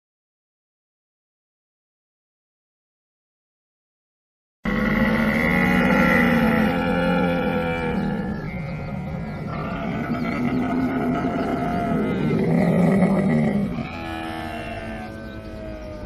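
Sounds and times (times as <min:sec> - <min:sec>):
camel calling: 0:04.7 - 0:16.0.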